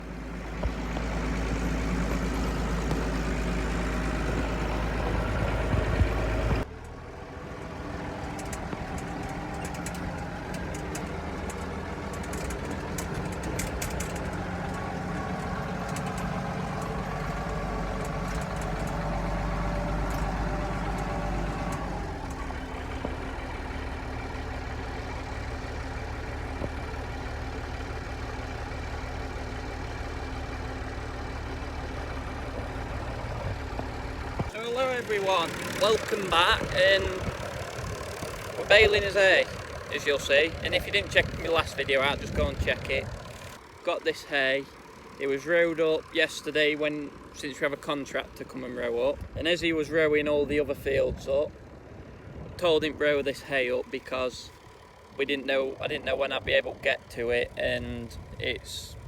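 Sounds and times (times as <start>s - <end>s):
tractor engines running: 0.0s - 59.0s
sharp clicks: 8.1s - 23.9s.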